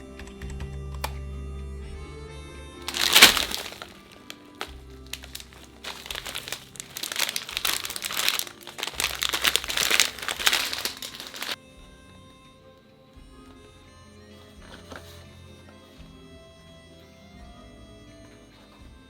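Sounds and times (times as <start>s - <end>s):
soft background music: 0.0s - 19.0s
packaging crinkling: 2.8s - 11.6s.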